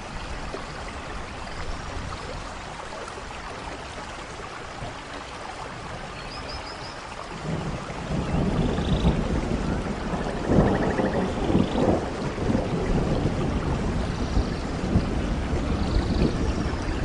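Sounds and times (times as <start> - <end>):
heavy rain: 0.0 - 17.0
thunder rumbling: 7.4 - 17.0.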